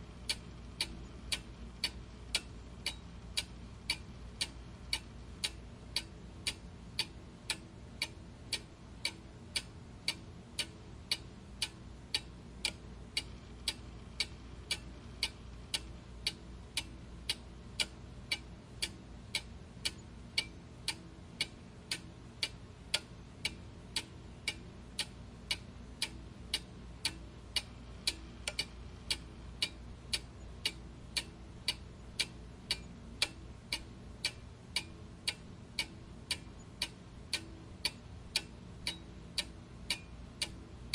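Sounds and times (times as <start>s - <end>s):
faint low hum: 0.0s - 40.9s
clock ticking: 0.2s - 40.9s.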